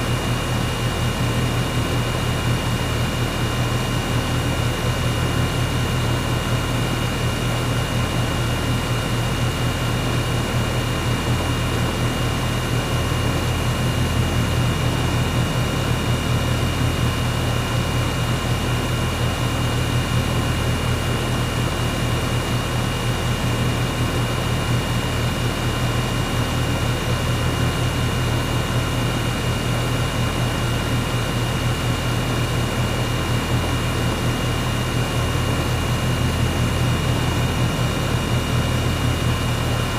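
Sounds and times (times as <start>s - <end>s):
air conditioner humming: 26.6s - 39.9s.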